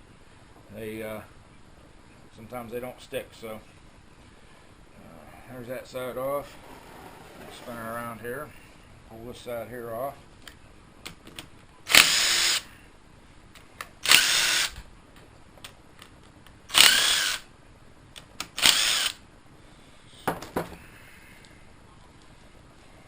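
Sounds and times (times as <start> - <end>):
cordless power tool bursts: 11.9 - 12.6, 14.0 - 14.8, 16.7 - 17.4, 18.6 - 19.2.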